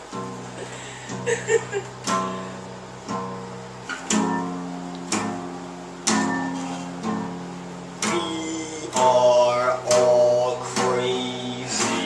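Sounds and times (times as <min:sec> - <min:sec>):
acoustic guitar chords strummed: 0:00.0 - 0:12.0.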